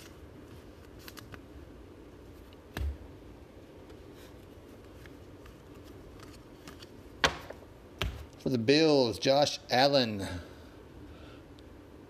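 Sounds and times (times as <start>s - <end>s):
trading cards flipped through: 0.0s - 1.5s, 4.2s - 7.5s
low room hum: 0.0s - 12.0s.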